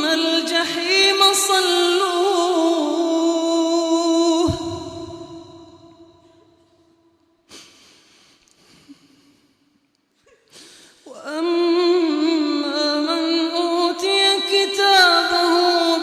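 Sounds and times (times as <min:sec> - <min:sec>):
sharp breath: 0:07.5 - 0:09.6, 0:10.5 - 0:11.1.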